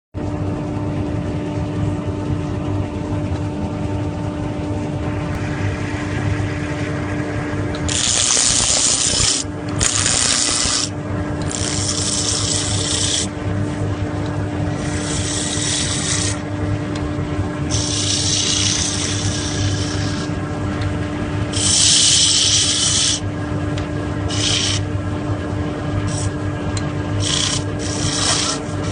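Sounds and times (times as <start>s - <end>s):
wood lathe motor humming: 5.0s - 13.5s, 14.2s - 17.0s, 17.6s - 20.8s, 21.5s - 24.9s, 26.0s - 26.4s, 27.2s - 28.9s
tool scraping spinning wood: 5.0s - 16.7s, 17.6s - 20.5s, 21.5s - 23.3s, 24.2s - 24.9s, 26.0s - 26.4s, 27.1s - 28.9s.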